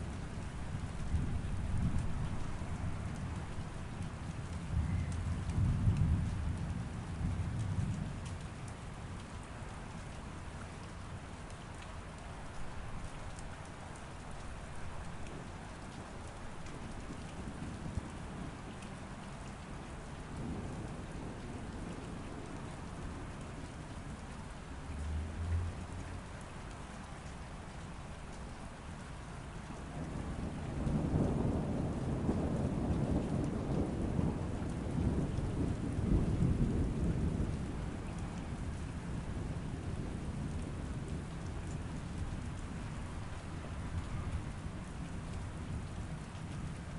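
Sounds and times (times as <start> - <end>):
rain behind a window: 0.0 - 46.9
thunder rolling: 30.4 - 38.2.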